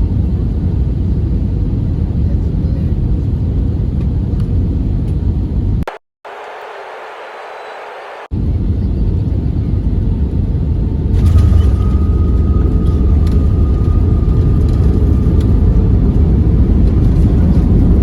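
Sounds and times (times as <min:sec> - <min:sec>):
vehicle rumble from inside: 0:08.4 - 0:18.0.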